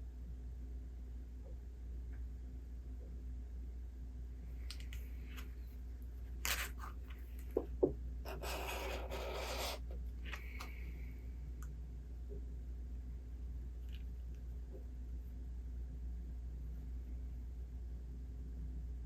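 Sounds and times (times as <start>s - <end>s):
steady low hum: 0.0s - 19.0s
paper scraping: 6.4s - 7.1s, 8.3s - 10.0s.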